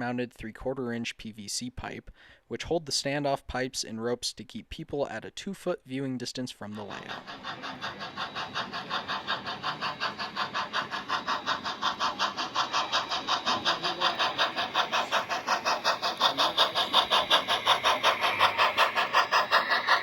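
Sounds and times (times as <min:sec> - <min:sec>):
model train running: 0:06.6 - 0:20.0.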